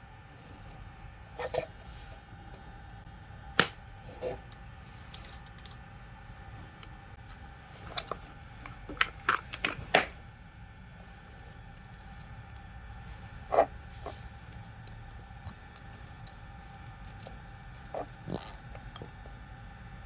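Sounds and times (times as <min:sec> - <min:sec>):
small hard parts clicking: 0:04.5 - 0:05.9, 0:14.5 - 0:20.0.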